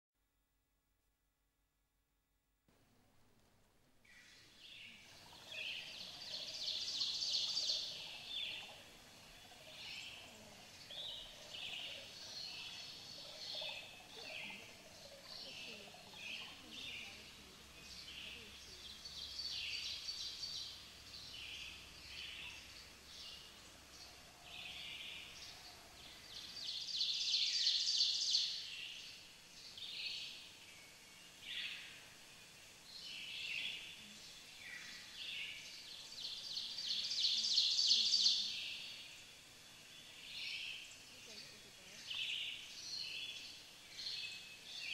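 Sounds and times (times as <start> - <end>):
birds chirping and trilling: 4.1 - 32.1, 32.9 - 39.2.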